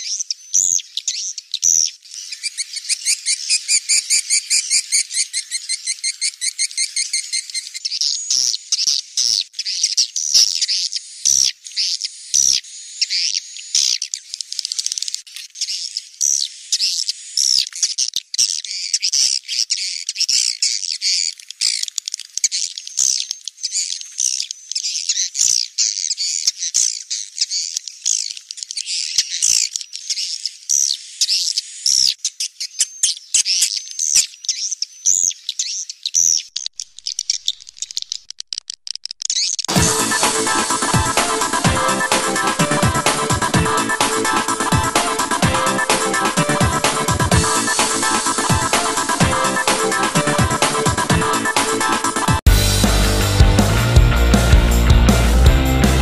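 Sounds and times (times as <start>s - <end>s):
sharp bird clicks: 36.0s - 39.7s
swiftlets twittering: 39.7s - 52.4s.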